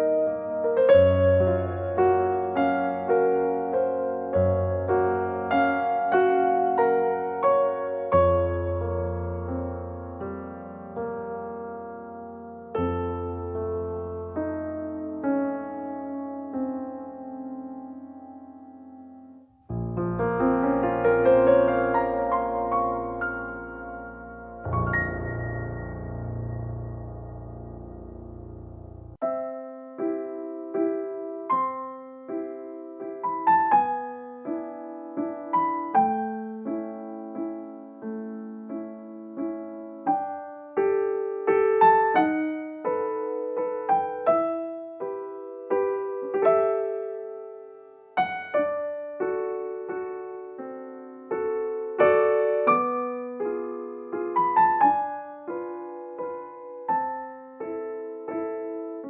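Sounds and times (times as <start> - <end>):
gentle solo piano: 0.0 - 59.0.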